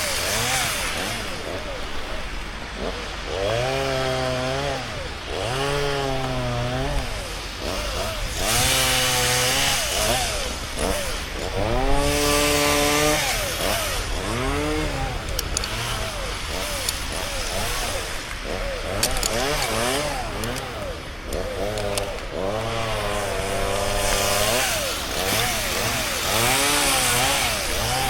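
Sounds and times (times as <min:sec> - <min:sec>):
chainsaw revving: 0:00.0 - 0:28.0.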